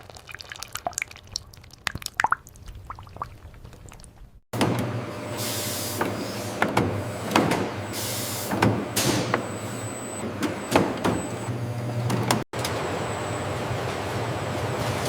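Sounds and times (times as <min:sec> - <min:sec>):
machinery humming: 0:04.6 - 0:15.0
pneumatic air hisses: 0:05.4 - 0:06.6, 0:07.9 - 0:09.3.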